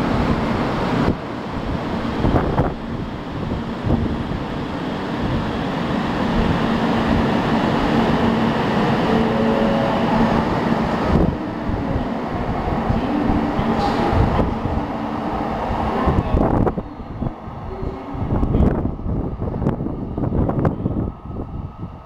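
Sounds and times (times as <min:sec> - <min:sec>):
train wheel running noise: 0:10.2 - 0:16.9.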